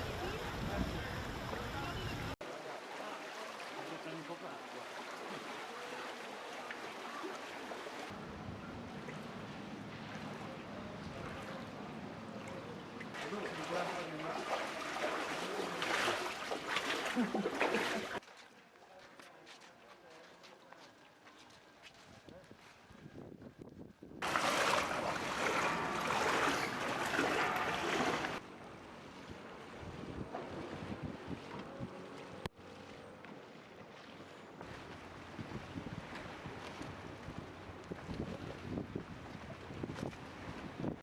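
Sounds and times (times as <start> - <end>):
motorboat engine humming: 0.0 - 2.4, 7.8 - 18.2, 24.2 - 38.0
water washing: 0.0 - 8.2, 8.8 - 18.2, 24.2 - 28.4
floodwater splashing and rushing: 0.0 - 18.2, 24.2 - 41.0
outdoor noise: 0.0 - 38.3.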